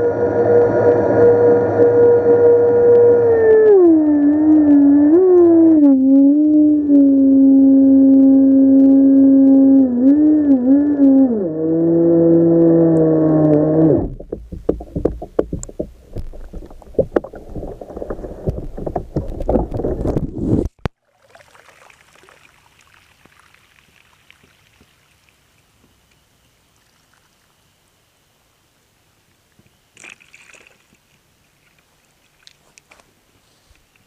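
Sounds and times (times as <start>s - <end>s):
low rushing noise: 0.0s - 3.6s
rc boat electric motor whine: 0.0s - 5.2s
faint water noise: 0.0s - 34.0s
irregular knocks: 14.1s - 20.2s.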